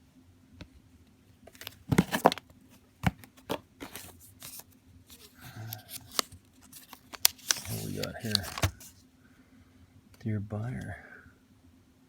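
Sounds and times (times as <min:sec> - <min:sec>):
packaging clicks: 0:01.5 - 0:08.9
packaging crinkling: 0:01.5 - 0:09.0.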